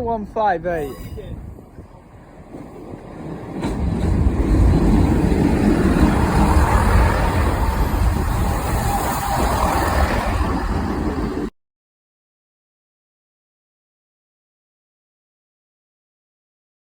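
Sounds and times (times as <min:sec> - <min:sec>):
diesel train rumbling past: 0:00.2 - 0:11.5.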